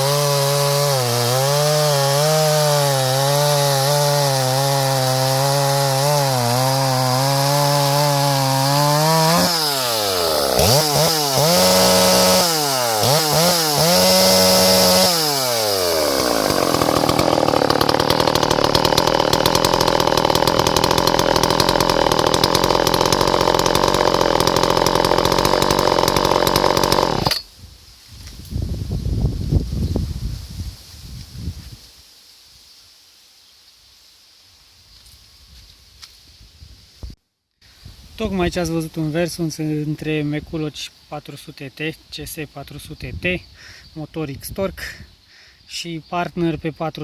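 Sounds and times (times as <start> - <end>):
chainsaw revving: 0.0 - 27.5.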